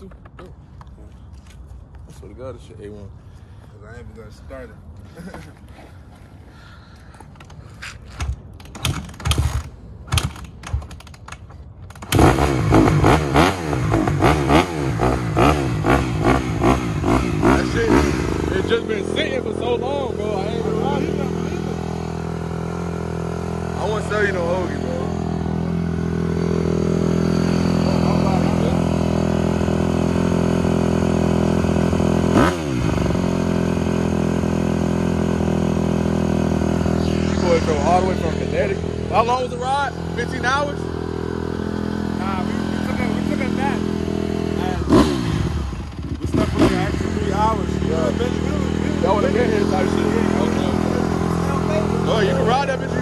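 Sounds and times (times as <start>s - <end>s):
dirt bike engine revving: 12.0s - 53.0s.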